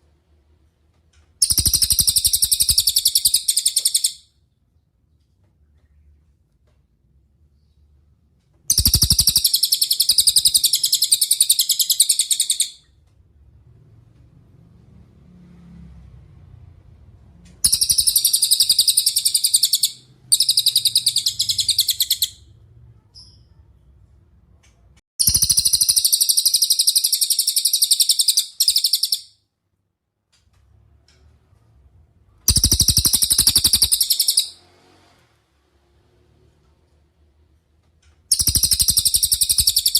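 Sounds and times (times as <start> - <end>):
songbird high-pitched trill: 8.7 - 12.7, 17.7 - 22.3, 38.3 - 39.9.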